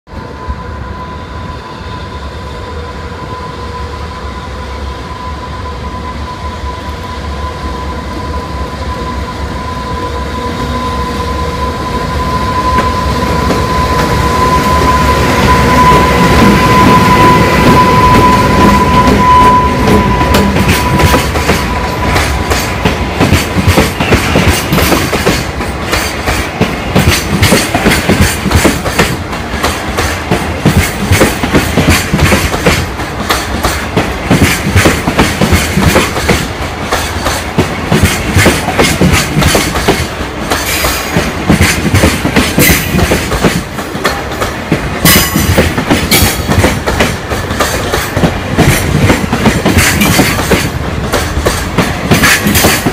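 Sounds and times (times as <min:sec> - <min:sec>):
locomotive high whine: 0:00.1 - 0:41.5
train wheels clickety-clack: 0:12.6 - 0:52.9.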